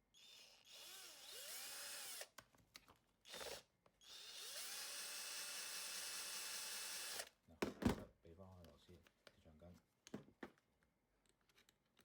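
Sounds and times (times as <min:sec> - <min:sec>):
drill-driver motor whirring: 0:00.2 - 0:02.3, 0:03.3 - 0:07.3.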